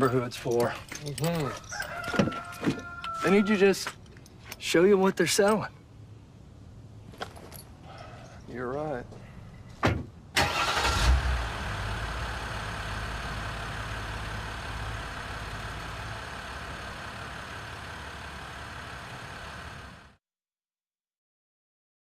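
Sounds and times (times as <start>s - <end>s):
pickup truck engine idling: 10.4s - 20.1s.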